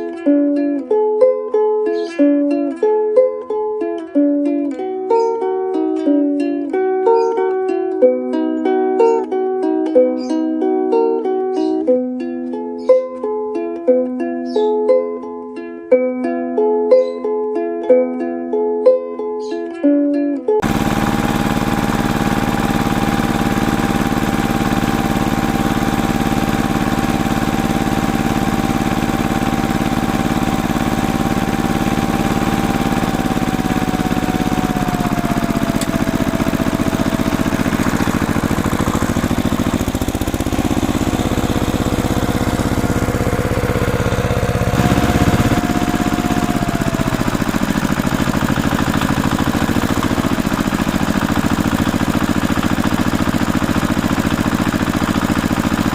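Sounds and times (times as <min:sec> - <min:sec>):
small motor machine whining: 0:20.6 - 0:55.9.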